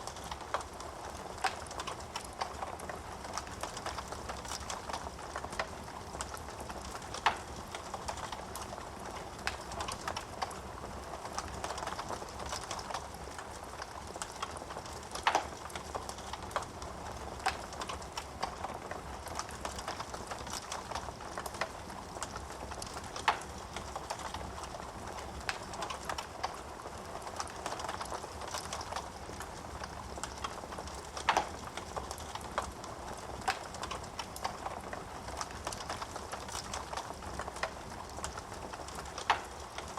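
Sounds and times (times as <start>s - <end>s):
fire crackling in fireplace: 0.0s - 39.9s.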